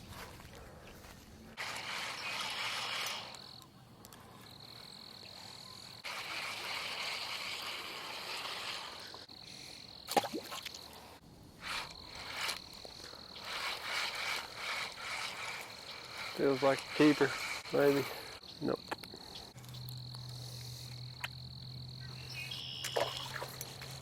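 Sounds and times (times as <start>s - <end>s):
outdoor background noise: 0.0s - 24.0s
frogs trilling: 4.4s - 23.6s.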